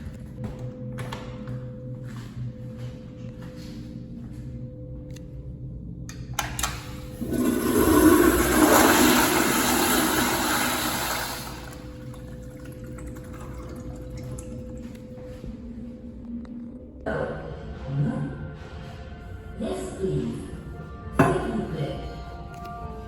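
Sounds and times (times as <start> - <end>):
toilet flushing: 6.8 - 15.4.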